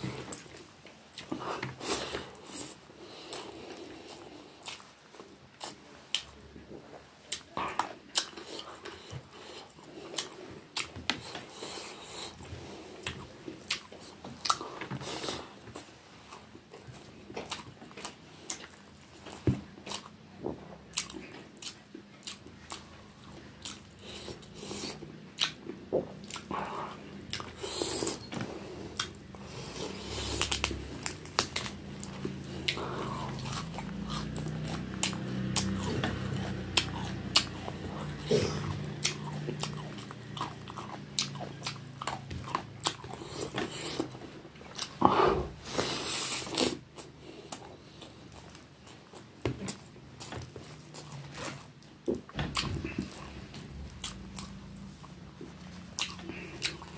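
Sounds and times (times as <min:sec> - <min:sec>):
wet chewing and lip smacks: 0:20.8 - 0:45.0.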